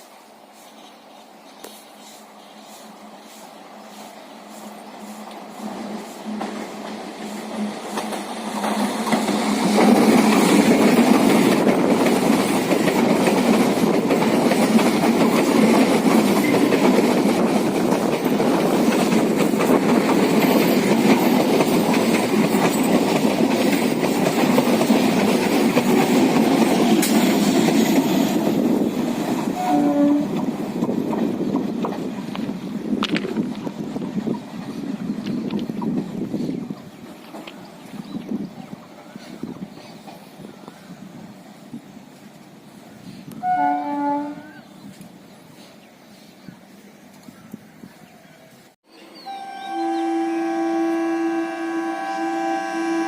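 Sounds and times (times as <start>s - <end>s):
train wheels clattering on rails: 1.6s - 43.6s
train horn note: 29.5s - 30.4s, 43.3s - 44.6s, 49.2s - 53.0s.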